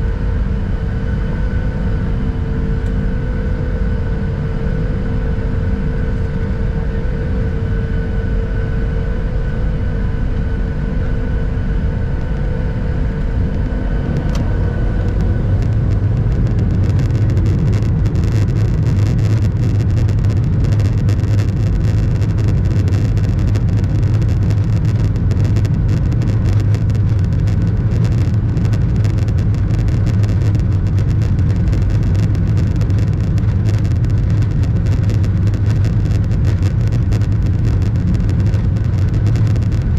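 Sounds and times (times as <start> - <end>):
jet engines roaring on takeoff: 0.0 - 39.9.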